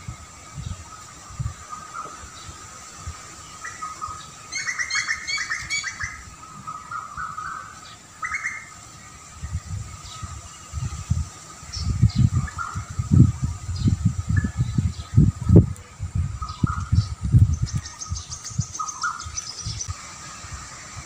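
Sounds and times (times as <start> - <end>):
low gusty rumbling: 0.0 - 4.3, 9.0 - 21.0
small bird chirping: 16.4 - 19.9.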